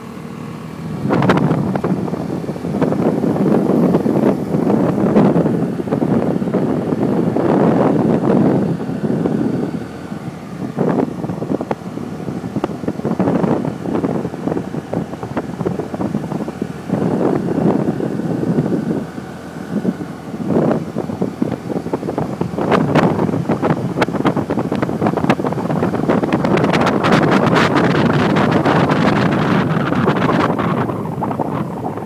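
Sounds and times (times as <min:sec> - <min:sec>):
motorbike vehicle noise: 0:00.0 - 0:32.0
wind buffeting microphone: 0:00.0 - 0:32.0
wind crackles on microphone: 0:00.0 - 0:32.0.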